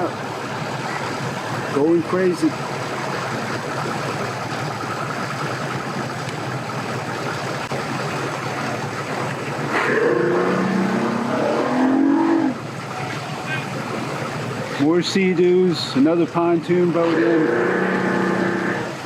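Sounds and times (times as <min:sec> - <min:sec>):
engine revving: 0:09.6 - 0:12.6, 0:16.9 - 0:19.0.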